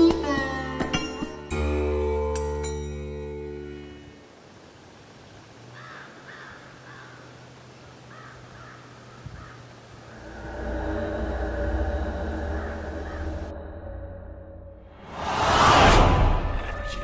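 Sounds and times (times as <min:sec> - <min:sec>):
background music: 0:00.0 - 0:04.2, 0:10.4 - 0:17.0
outdoor ambience: 0:00.0 - 0:17.0
bird calling: 0:05.8 - 0:07.4, 0:08.0 - 0:10.3, 0:11.8 - 0:13.6.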